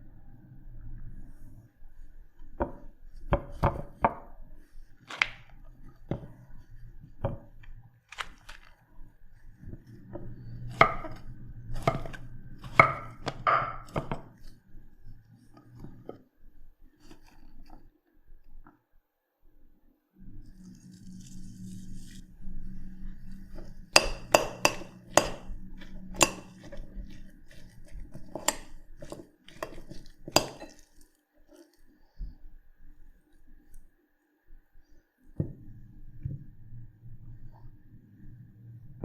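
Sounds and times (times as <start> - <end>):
faint low hum: 0.0 - 39.0
knife chopping on cutting board: 11.8 - 14.3, 23.6 - 30.8.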